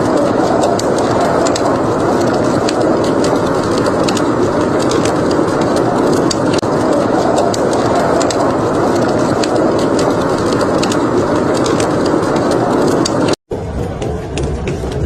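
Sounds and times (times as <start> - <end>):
wood fire crackling: 0.0 - 13.4.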